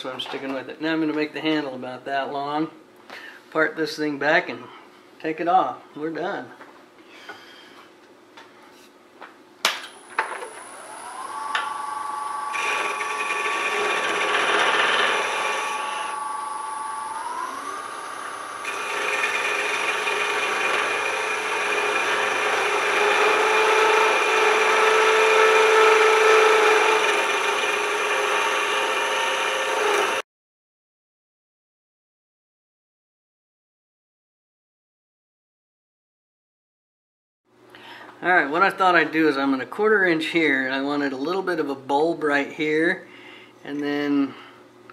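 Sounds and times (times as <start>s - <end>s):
wood lathe motor whine: 10.0s - 30.2s
turning tool scraping wood: 12.5s - 16.1s, 18.6s - 28.7s.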